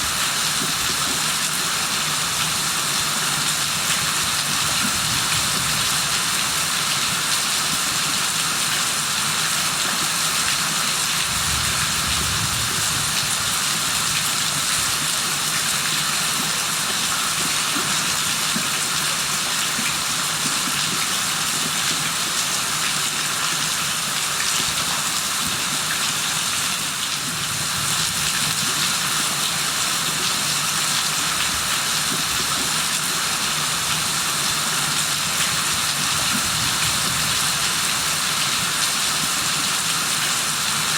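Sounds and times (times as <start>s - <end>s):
heavy rain: 2.4s - 17.4s, 33.2s - 40.9s.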